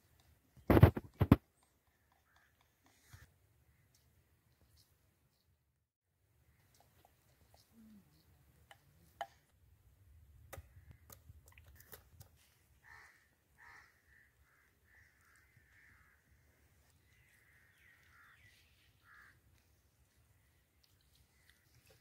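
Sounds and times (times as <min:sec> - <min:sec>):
faint bird calls: 0:12.7 - 0:22.0.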